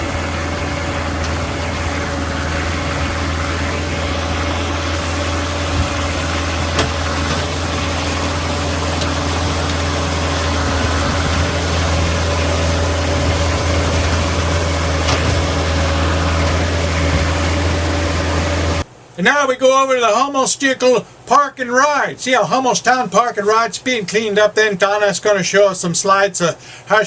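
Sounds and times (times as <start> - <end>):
motor humming: 0.0 - 18.8.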